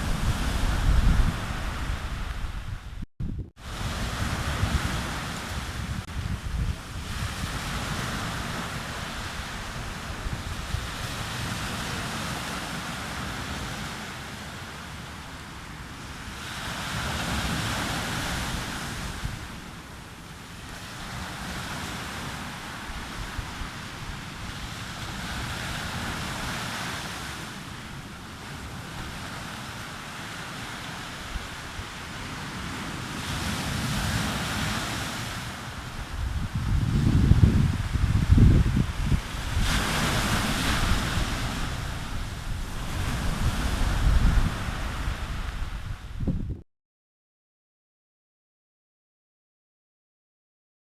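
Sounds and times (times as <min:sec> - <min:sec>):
waves breaking on beach: 0:00.0 - 0:03.0, 0:03.6 - 0:46.2
wind buffeting microphone: 0:00.0 - 0:12.5, 0:35.7 - 0:46.6.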